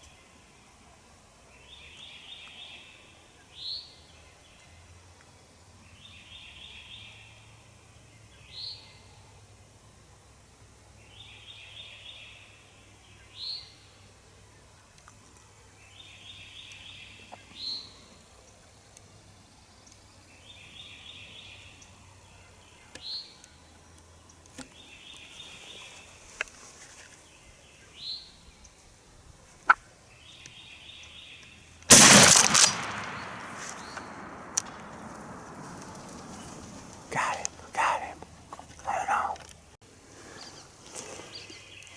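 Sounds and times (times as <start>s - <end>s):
shotgun blast echoing: 31.9s - 36.3s.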